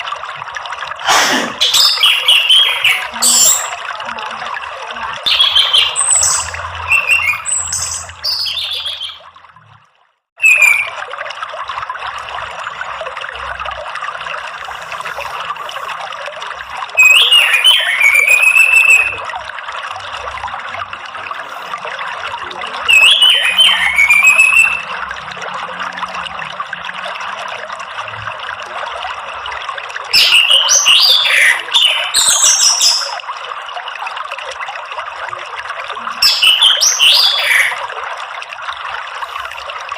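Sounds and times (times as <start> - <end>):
running water: 0.0 - 39.9
thrush singing: 5.3 - 9.2.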